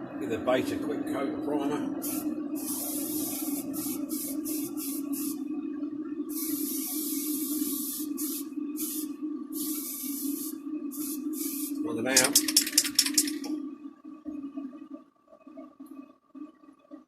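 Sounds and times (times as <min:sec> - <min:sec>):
steady low hum: 0:00.0 - 0:17.0
spray can hissing bursts: 0:02.0 - 0:05.4, 0:06.3 - 0:13.5.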